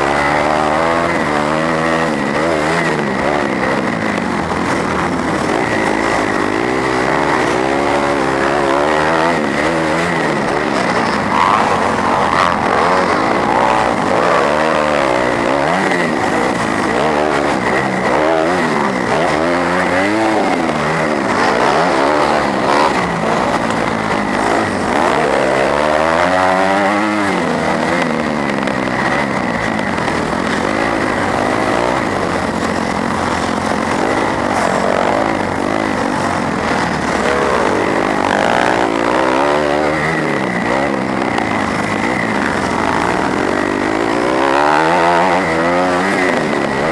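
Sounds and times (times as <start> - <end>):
motocross bike engine revving: 0.0 - 46.9.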